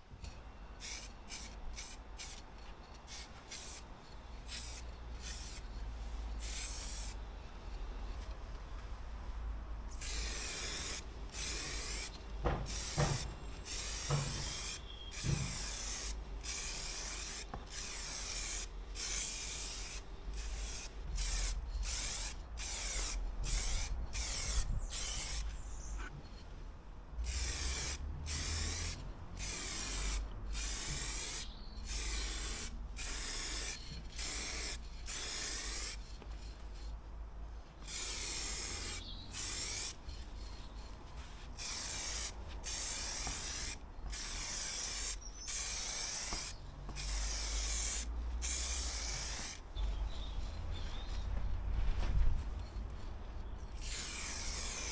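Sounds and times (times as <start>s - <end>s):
aerosol spray can hissing: 3.1s - 3.8s, 4.5s - 5.6s, 6.4s - 7.2s, 9.9s - 25.5s, 27.2s - 36.0s, 37.8s - 40.6s, 41.6s - 49.6s, 53.8s - 54.9s.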